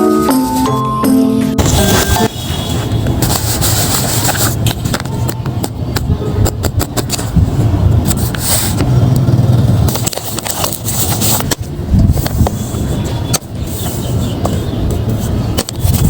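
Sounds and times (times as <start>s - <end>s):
paper crinkling and rustling: 1.6s - 5.2s, 9.9s - 11.6s
sharp crackles and clicks: 8.1s - 11.6s.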